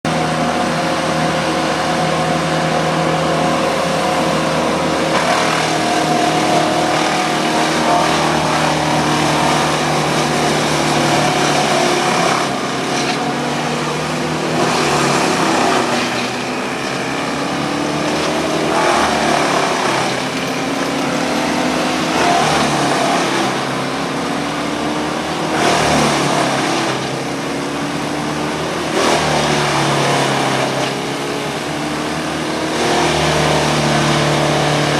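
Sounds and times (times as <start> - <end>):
diesel engines running: 0.1 - 34.9
wood chipper grinding: 0.1 - 34.9.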